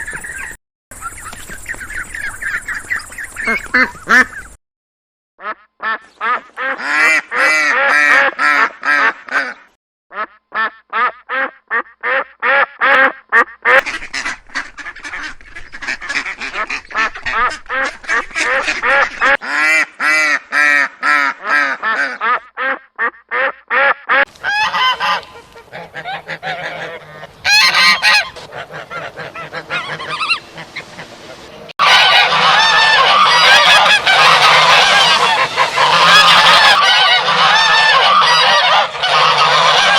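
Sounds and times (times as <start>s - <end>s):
waterfowl calling: 0.0s - 4.6s, 5.4s - 39.9s.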